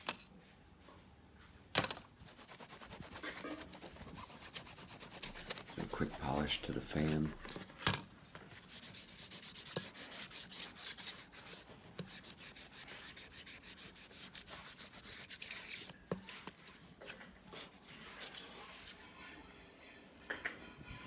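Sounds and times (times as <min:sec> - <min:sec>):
hand rubbing strokes on fan: 0:02.2 - 0:07.4, 0:08.5 - 0:16.4.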